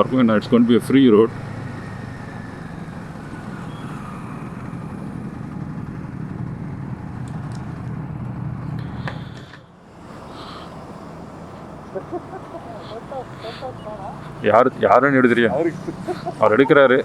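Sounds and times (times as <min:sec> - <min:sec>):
motorcycle engine running: 0:00.0 - 0:09.3
road noise: 0:00.0 - 0:17.0.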